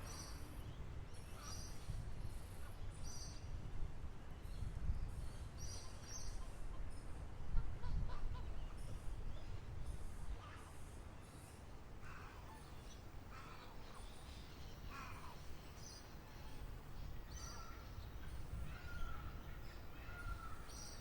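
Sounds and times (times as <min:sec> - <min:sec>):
harsh falling bird calls: 0:12.0 - 0:21.0.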